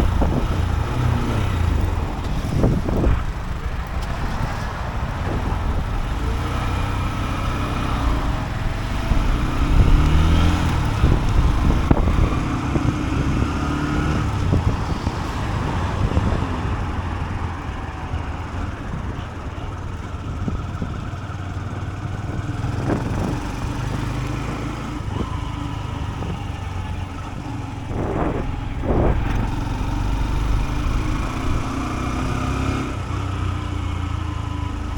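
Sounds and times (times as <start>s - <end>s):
motorcycle engine running: 0.0s - 34.9s
low rumble: 25.0s - 33.1s.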